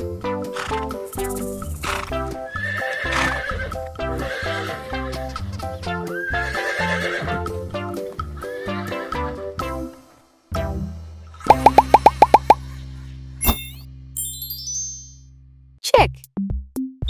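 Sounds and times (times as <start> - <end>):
cheerful children's music: 0.0 - 10.0
horse neighing: 1.8 - 5.3, 6.2 - 7.4.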